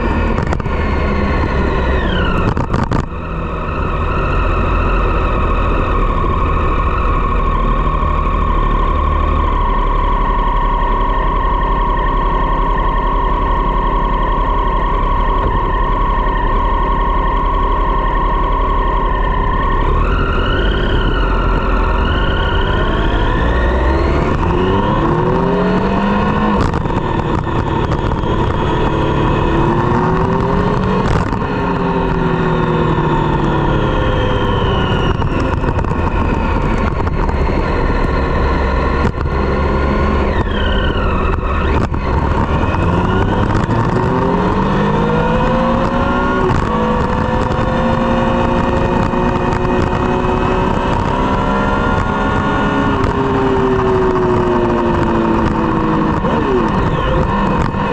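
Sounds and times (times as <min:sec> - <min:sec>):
motorcycle engine revving: 0:00.0 - 0:57.9
exhaust cracks: 0:01.4 - 0:04.6, 0:19.6 - 0:57.9.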